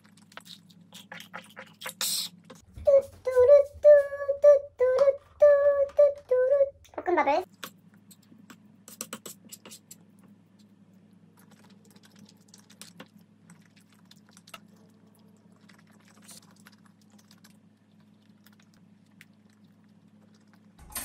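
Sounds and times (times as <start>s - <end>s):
chewing and mouth sounds: 0.0s - 2.6s, 7.5s - 20.8s
low steady hum: 0.0s - 21.0s.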